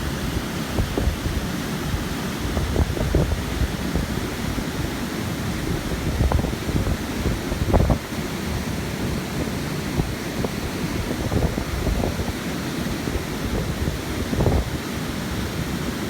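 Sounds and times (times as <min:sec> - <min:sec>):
wind buffeting microphone: 0:00.0 - 0:08.1, 0:09.9 - 0:12.4, 0:13.0 - 0:14.9.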